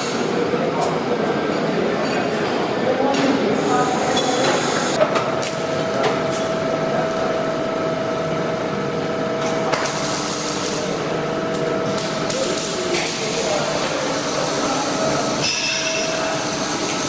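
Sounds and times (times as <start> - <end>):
steady hum: 2.8 - 17.0
welding hiss: 9.7 - 10.9, 11.8 - 17.0.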